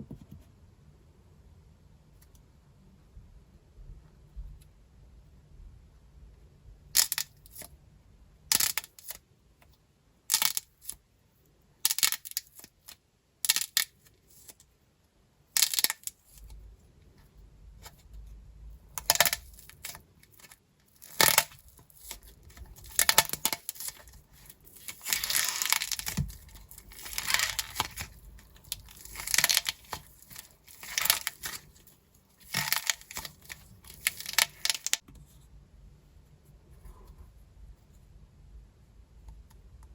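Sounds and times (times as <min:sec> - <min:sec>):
dried clay crackling and snapping: 0:11.9 - 0:14.6, 0:18.9 - 0:35.1.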